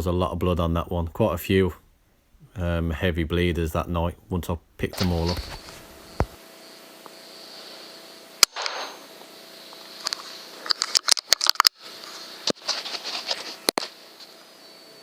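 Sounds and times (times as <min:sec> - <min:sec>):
rustling: 0:04.9 - 0:06.4, 0:10.0 - 0:14.4
air rifle shot: 0:08.4 - 0:09.1.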